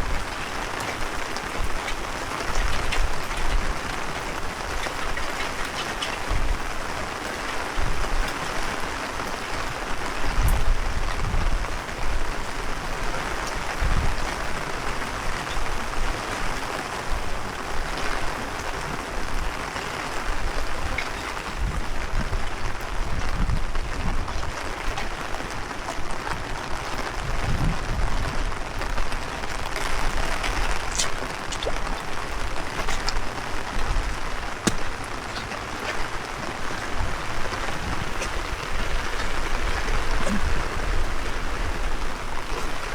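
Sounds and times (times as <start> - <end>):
heavy rain hissing: 0.0 - 42.9
wind rumbling on microphone: 0.0 - 42.9
drops ticking: 29.8 - 42.9.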